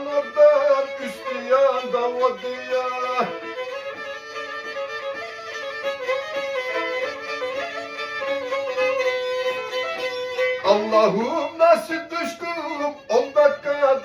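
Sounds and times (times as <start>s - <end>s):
man singing: 0.0s - 3.8s, 10.6s - 14.0s
bowed fiddle melody: 0.0s - 14.0s.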